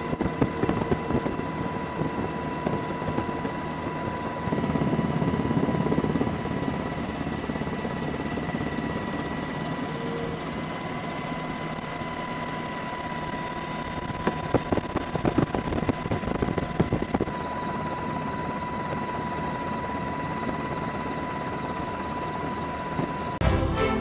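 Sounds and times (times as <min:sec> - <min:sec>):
engine with high whine: 0:00.0 - 0:23.4
music: 0:23.4 - 0:24.0.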